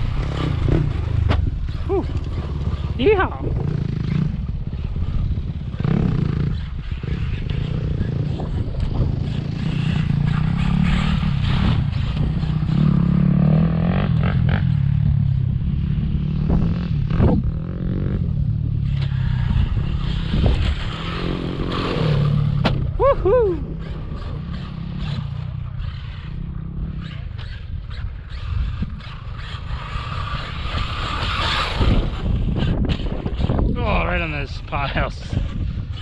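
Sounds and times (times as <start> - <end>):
electric toy truck motor rumble: 23.6 - 33.7.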